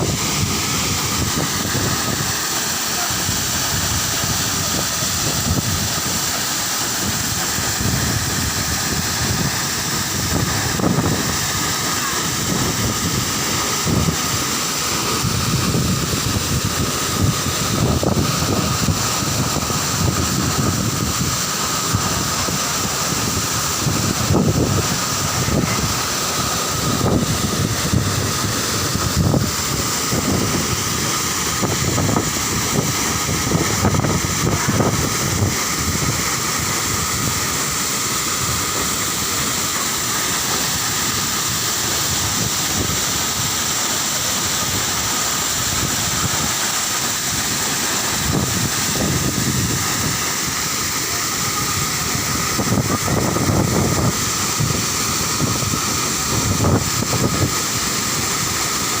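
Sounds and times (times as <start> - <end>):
steady rushing roar: 0.0 - 59.0
wind buffeting microphone: 26.7 - 37.4, 51.7 - 58.0.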